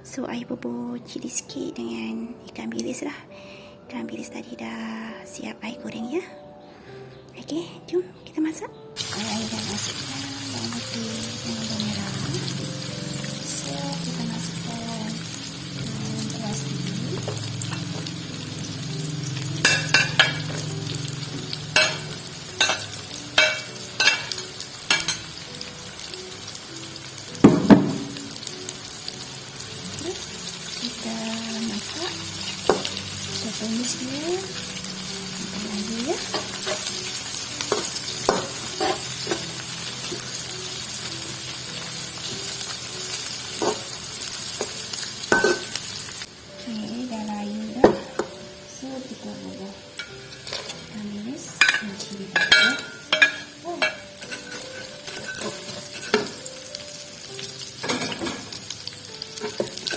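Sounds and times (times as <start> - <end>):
food sizzling in a pan: 9.0 - 59.9
spatula scraping a pan: 36.2 - 40.5, 50.0 - 50.8, 51.6 - 56.5.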